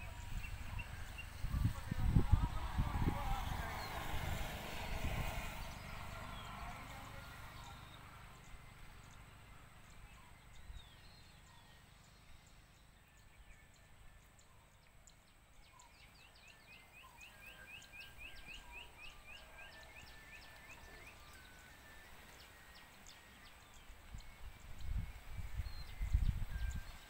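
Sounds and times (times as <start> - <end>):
bird chirps: 5.5 - 27.0.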